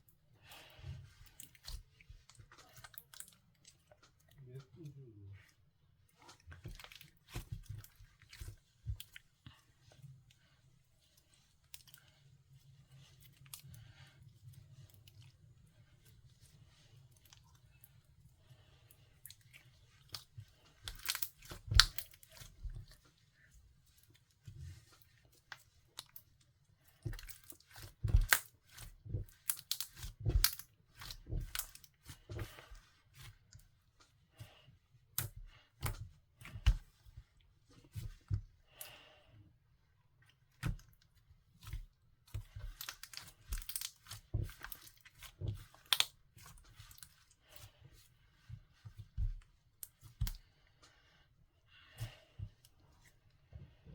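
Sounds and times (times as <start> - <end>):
slime squishing with sticky pops: 19.1 - 39.0, 40.3 - 47.8, 48.4 - 50.6.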